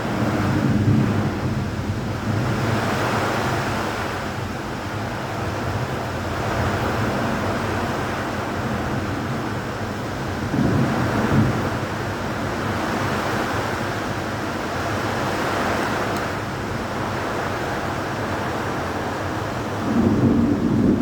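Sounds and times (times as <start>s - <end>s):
low thunder rumble: 0.0s - 2.7s, 8.5s - 14.3s, 19.8s - 21.0s
rain: 0.0s - 21.0s.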